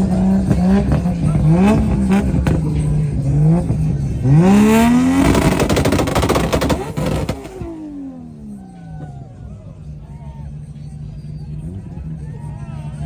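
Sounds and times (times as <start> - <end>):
exhaust pops and crackles: 0.0 - 8.0
car engine revving: 0.0 - 13.0.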